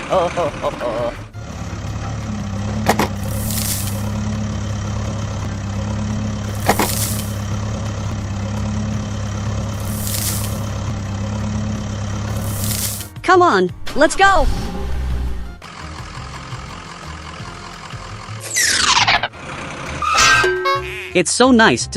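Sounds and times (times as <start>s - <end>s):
vehicle engine idling: 0.0s - 13.3s, 14.8s - 20.1s
high hissing swishes: 3.2s - 4.1s, 9.8s - 10.7s, 12.3s - 13.1s.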